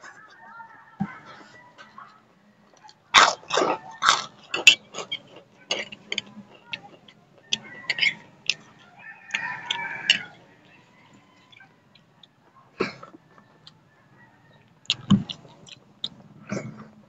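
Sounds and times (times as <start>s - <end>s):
crunchy chewing: 1.1s - 17.0s
mouth clicks and smacks: 14.8s - 16.8s.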